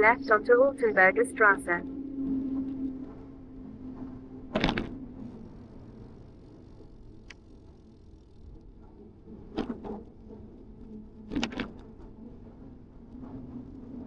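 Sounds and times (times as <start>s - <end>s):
bicycle tyres rumbling: 1.9s - 14.0s.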